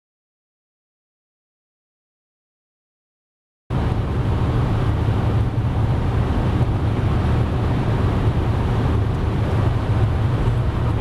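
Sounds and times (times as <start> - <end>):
car engine droning: 3.7 - 11.0
wind and road noise: 3.7 - 11.0.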